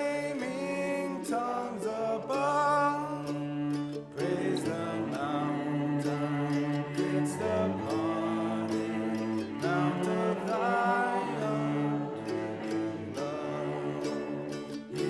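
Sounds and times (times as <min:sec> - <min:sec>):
hymn singing: 0:00.0 - 0:15.0.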